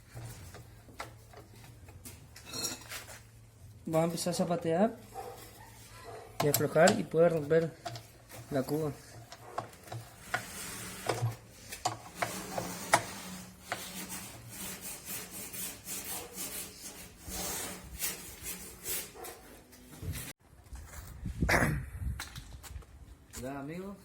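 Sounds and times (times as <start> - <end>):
hand tool rasping and scraping: 5.0 - 20.3.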